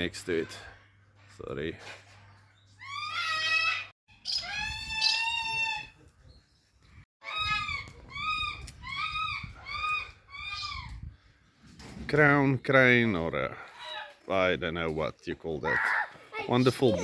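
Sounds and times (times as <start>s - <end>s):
large bird calling harshly: 2.8s - 6.0s, 7.2s - 11.0s.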